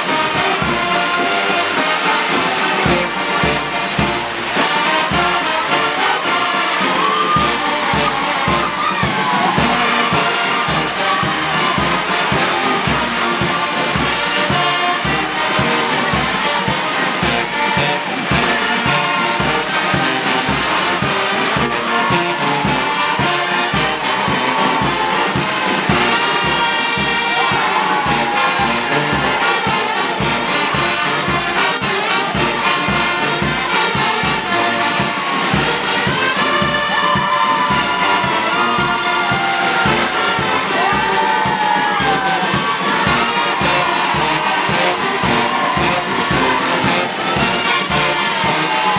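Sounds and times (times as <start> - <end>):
brass melody: 0.0 - 48.9
steady drum beat: 0.0 - 48.9.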